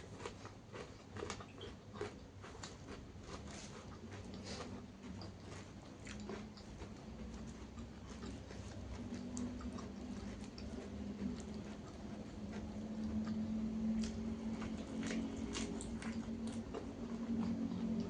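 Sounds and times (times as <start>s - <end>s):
person chewing food: 0.0s - 18.0s
low hum: 6.9s - 18.0s.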